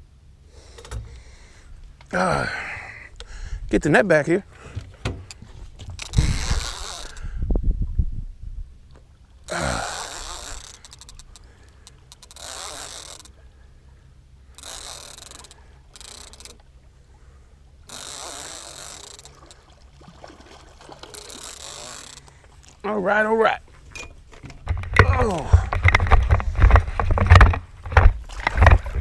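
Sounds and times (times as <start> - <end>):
fishing reel cranking: 6.0 - 7.3, 9.5 - 13.4, 14.5 - 16.6, 17.8 - 19.6, 21.0 - 22.4
heavy handling thumps: 23.8 - 29.0.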